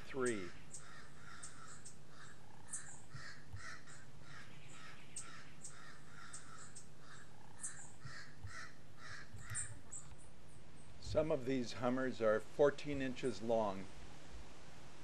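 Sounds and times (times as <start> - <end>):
bird harsh calls: 0.0 - 11.0
steady low hum: 0.0 - 15.0.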